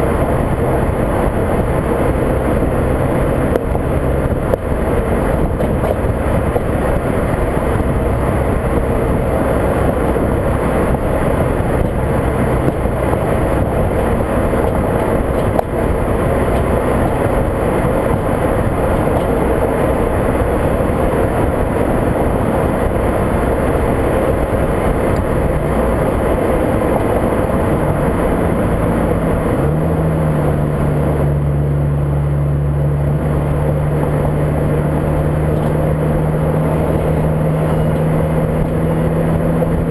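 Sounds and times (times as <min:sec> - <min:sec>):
car engine droning: 0:00.0 - 0:39.9
wind and road noise: 0:00.0 - 0:39.9.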